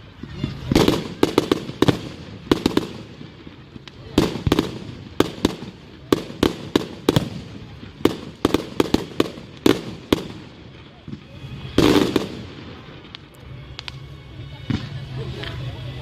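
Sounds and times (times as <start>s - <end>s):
fireworks banging: 0.0s - 15.8s.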